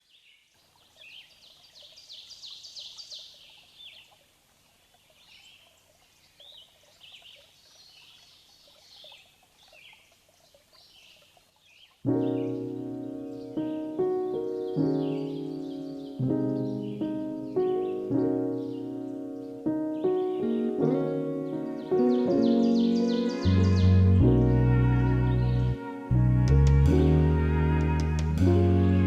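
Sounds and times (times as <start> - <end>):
birds chirping and singing: 10.8 - 26.0.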